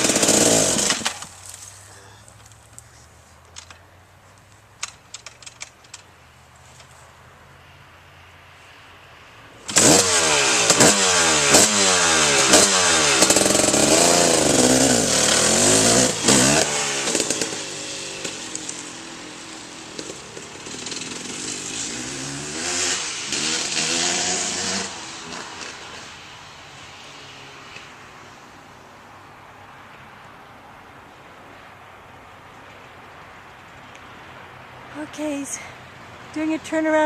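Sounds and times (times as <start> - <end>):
dirt bike engine revving: 0.0 - 1.4, 9.6 - 26.3.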